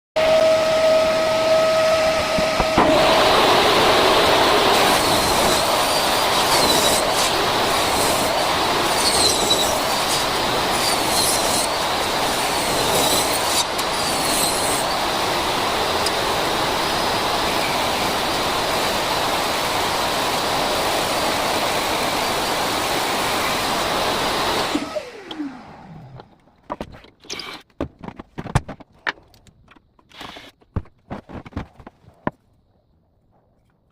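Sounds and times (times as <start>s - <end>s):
power tool cutting wood: 0.2s - 26.4s.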